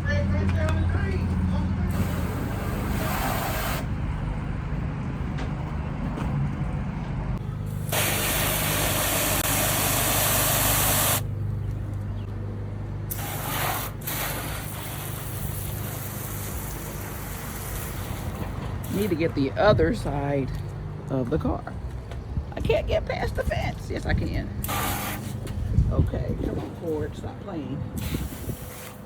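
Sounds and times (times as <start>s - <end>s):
hose nozzle spraying water: 1.9s - 3.9s, 7.7s - 11.2s, 13.1s - 19.1s, 24.6s - 25.4s.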